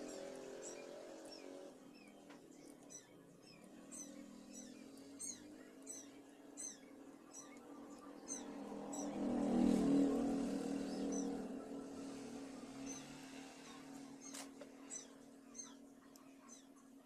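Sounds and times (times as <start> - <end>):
small bird chirping: 0.0 - 17.0.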